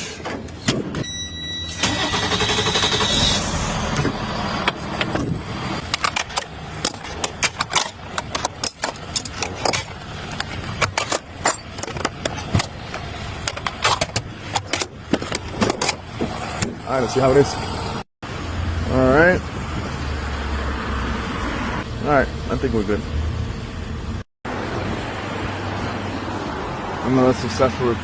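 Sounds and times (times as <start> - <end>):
truck engine running: 1.8 - 18.0
sharp clicks and knocks: 5.9 - 16.8.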